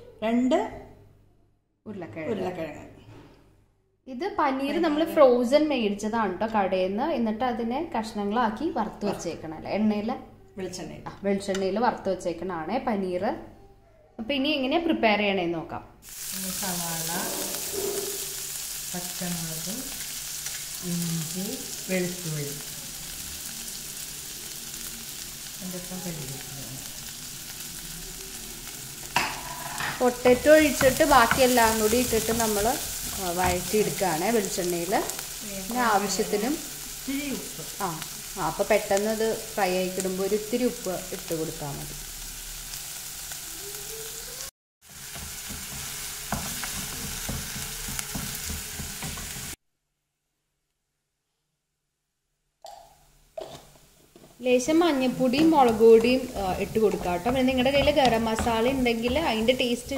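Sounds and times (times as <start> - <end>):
vegetables sizzling in hot oil: 16.0 - 49.6, 54.4 - 59.9
wooden spatula stirring and scraping: 44.9 - 49.6, 54.0 - 59.9.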